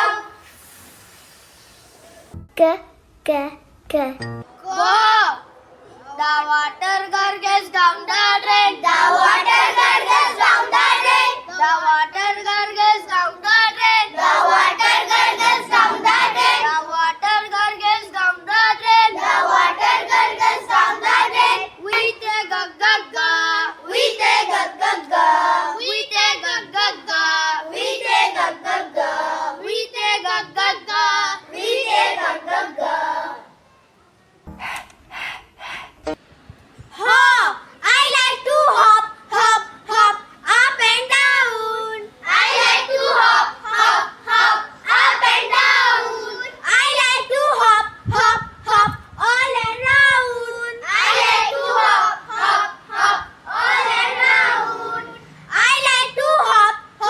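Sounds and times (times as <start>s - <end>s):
children singing together: 0.0s - 0.4s, 6.4s - 33.5s, 41.4s - 57.0s.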